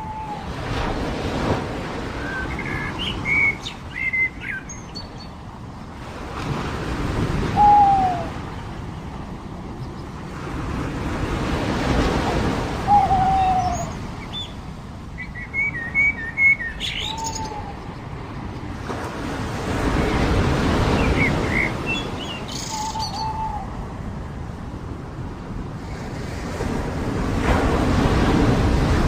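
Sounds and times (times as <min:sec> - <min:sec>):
bird hooting call: 0:00.0 - 0:00.5, 0:07.5 - 0:08.4, 0:12.8 - 0:14.0, 0:15.6 - 0:17.9, 0:22.6 - 0:23.8
surf washing on beach: 0:00.0 - 0:15.8, 0:17.1 - 0:29.0
birds chirping: 0:02.2 - 0:05.4, 0:12.9 - 0:18.8, 0:20.9 - 0:23.6.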